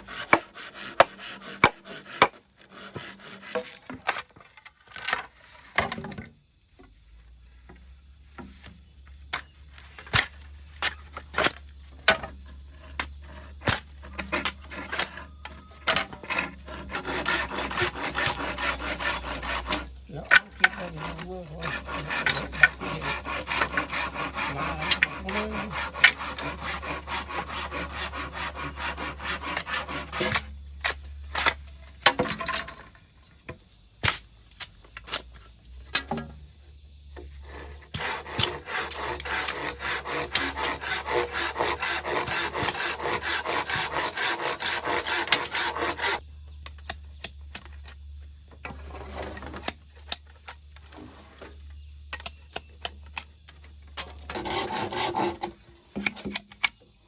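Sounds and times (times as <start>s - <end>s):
hand saw cutting wood: 0.0s - 4.4s, 10.0s - 32.9s, 37.2s - 46.2s, 48.7s - 49.8s, 54.0s - 56.7s.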